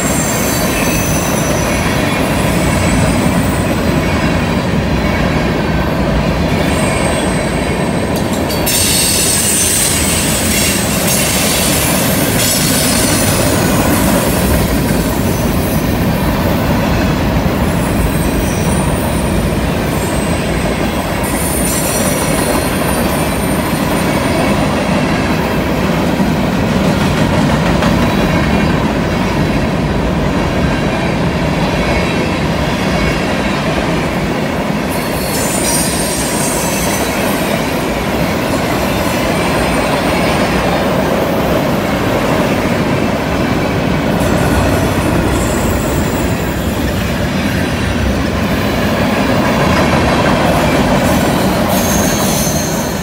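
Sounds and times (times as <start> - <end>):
high wheel squeal: 0.0 - 3.6, 8.5 - 14.1, 35.0 - 37.7, 45.2 - 47.0, 51.0 - 53.0
train wheels rumbling on rails: 0.0 - 53.0.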